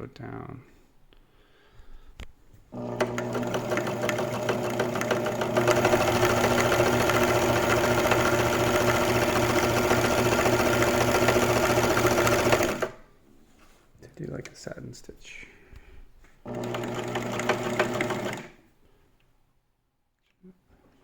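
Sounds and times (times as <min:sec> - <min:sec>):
sewing machine motor hum: 0:02.7 - 0:13.0, 0:16.4 - 0:18.6
sewing machine needle beat: 0:02.8 - 0:13.0, 0:16.5 - 0:18.5.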